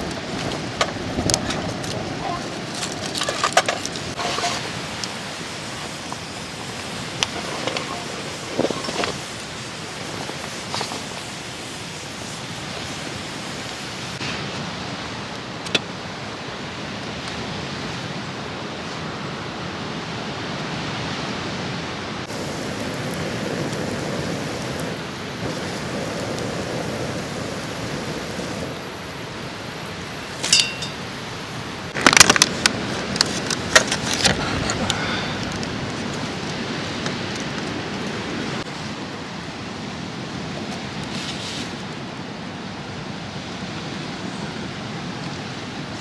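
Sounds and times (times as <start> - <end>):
steady rushing outdoor noise: 0.0 - 46.0
metallic clinking and rattling: 30.4 - 31.1.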